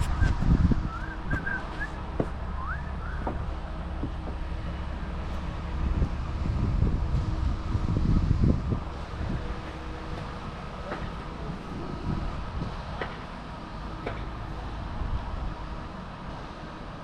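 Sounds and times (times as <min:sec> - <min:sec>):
wind buffeting microphone: 0:00.0 - 0:13.6
truck engine droning: 0:00.0 - 0:17.0.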